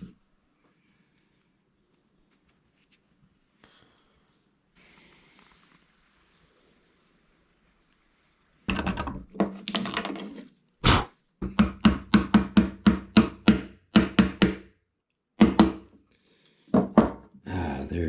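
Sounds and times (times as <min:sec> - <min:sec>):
hard tool knocking on bone: 0:11.4 - 0:14.6, 0:15.4 - 0:15.9.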